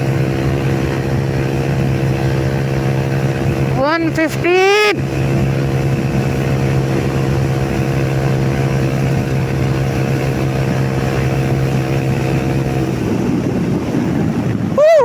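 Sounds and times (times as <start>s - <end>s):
motorcycle engine at high pitch: 0.0s - 15.0s
wind rushing: 12.0s - 15.0s.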